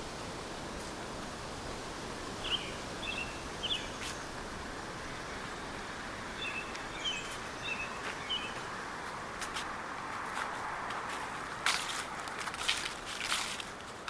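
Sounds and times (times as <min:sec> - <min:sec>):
outdoor ambience hiss: 0:00.0 - 0:14.0
small birds chirping: 0:02.4 - 0:04.4, 0:05.0 - 0:09.2.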